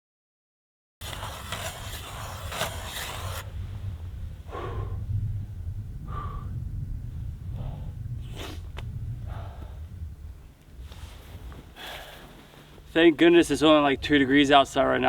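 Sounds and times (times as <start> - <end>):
ice auger grinding through ice: 1.0 - 3.5
wind rumble on microphone: 1.0 - 15.0
man breathing heavily: 4.4 - 5.2, 6.0 - 6.8, 7.4 - 8.4, 9.2 - 10.0, 11.7 - 12.8.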